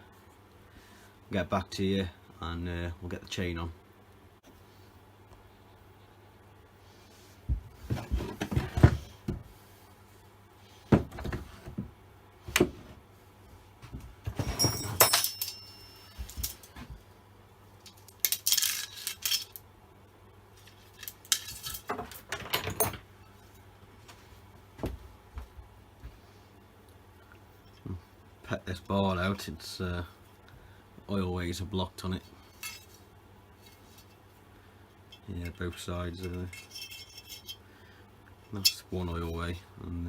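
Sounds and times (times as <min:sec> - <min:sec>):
faint low hum: 0:00.0 - 0:40.0
metal tools clinking and clattering: 0:14.4 - 0:16.8, 0:17.9 - 0:19.6, 0:20.6 - 0:23.0, 0:32.5 - 0:33.0, 0:36.2 - 0:37.6.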